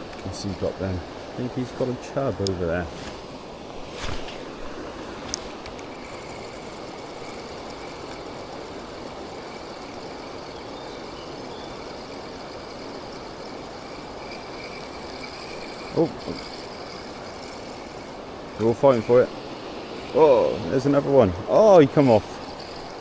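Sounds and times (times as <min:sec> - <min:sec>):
water pouring over weir: 0:05.6 - 0:23.0.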